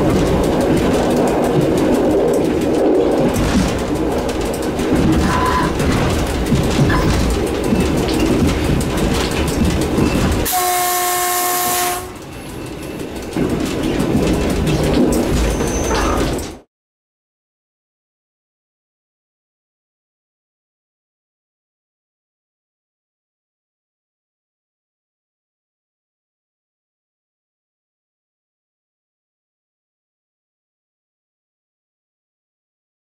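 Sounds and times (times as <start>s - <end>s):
electric train running on track: 0.0s - 16.7s
train horn blast: 10.5s - 12.2s.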